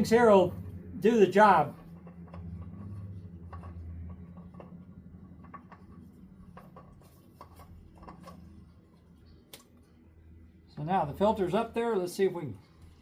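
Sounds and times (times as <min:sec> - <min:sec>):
low steady hum: 0:00.0 - 0:13.0
oil filter clicking and rubbing: 0:01.6 - 0:09.8.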